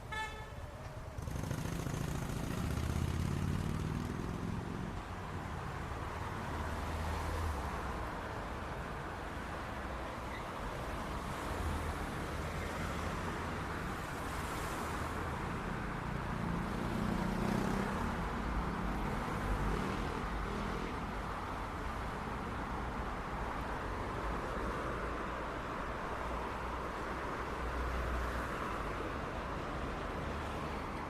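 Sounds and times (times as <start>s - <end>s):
cars passing by: 0.0s - 31.0s
traffic rumble and hiss: 0.0s - 31.0s
vehicle engine: 0.9s - 5.0s.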